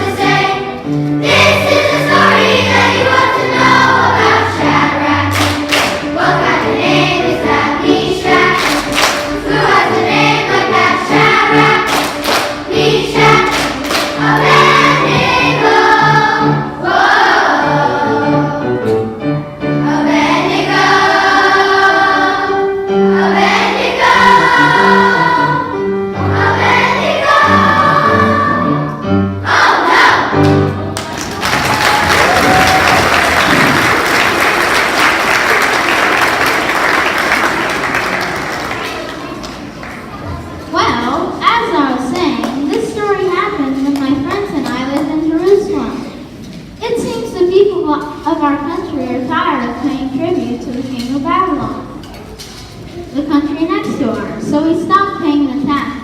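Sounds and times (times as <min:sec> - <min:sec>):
instrumental accompaniment: 0:00.0 - 0:35.3
children's choir singing: 0:00.0 - 0:41.4.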